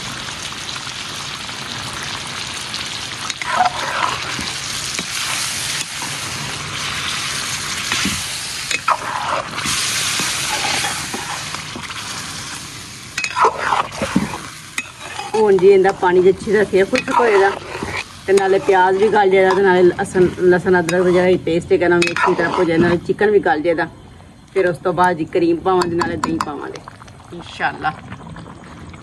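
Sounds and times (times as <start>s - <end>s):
chicken sizzling in hot oil: 0.0s - 22.8s
metal skimmer scraping pan: 3.3s - 12.5s, 13.1s - 23.2s.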